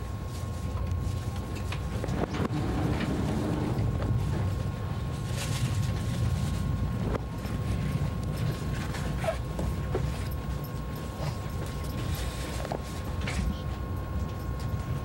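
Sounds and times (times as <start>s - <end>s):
train rumble from inside: 0.0s - 15.0s.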